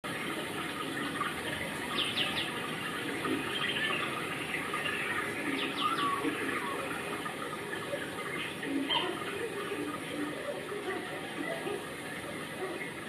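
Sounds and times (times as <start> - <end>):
steady rain falling: 0.0 - 13.0
bird chirping: 1.6 - 9.6.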